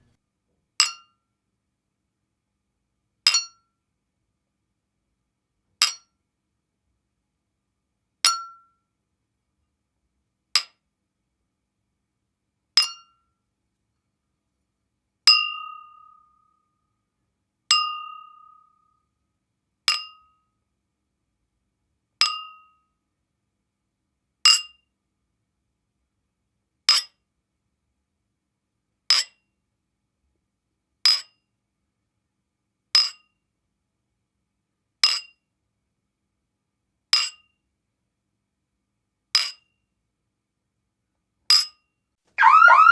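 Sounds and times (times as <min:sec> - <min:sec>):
sharp high clink: 0:15.3 - 0:16.4, 0:17.7 - 0:18.7.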